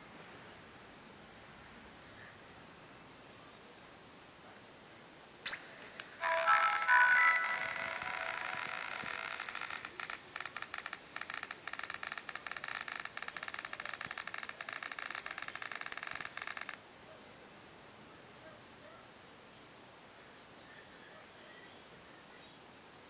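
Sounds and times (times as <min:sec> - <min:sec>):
hard disk buzzing and chattering: 0:05.5 - 0:16.8.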